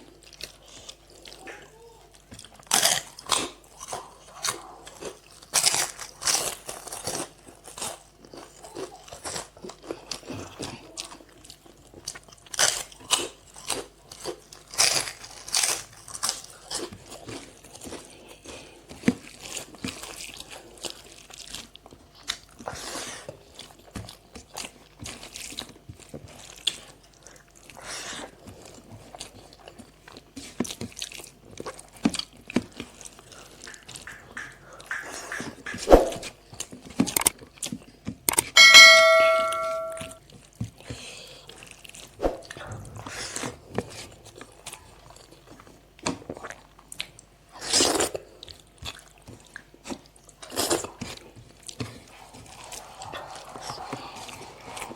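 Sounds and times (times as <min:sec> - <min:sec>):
crunching and chewing: 0:00.0 - 0:35.8, 0:36.4 - 0:38.5, 0:40.2 - 0:42.8, 0:43.5 - 0:54.9
metal dish struck ringing: 0:38.6 - 0:40.2.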